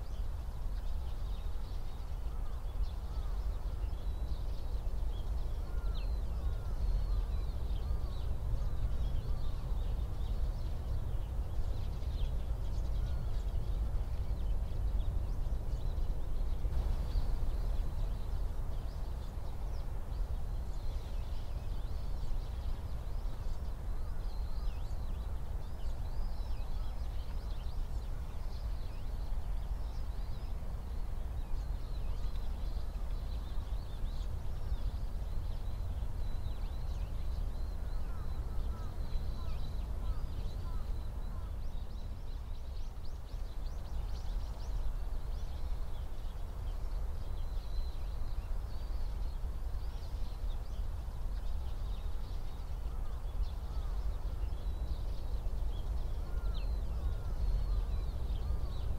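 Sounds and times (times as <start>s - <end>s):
small birds chirping: 0.0s - 58.9s.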